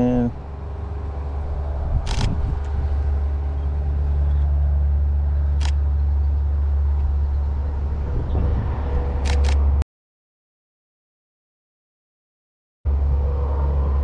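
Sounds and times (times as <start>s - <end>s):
camera shutter clicking: 2.0s - 2.4s, 5.6s - 5.8s, 9.2s - 9.6s.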